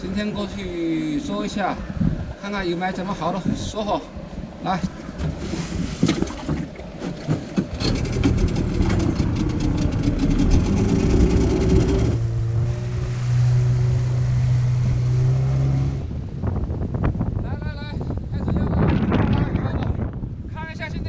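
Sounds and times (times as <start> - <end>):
boat engine drone: 6.9 - 16.2.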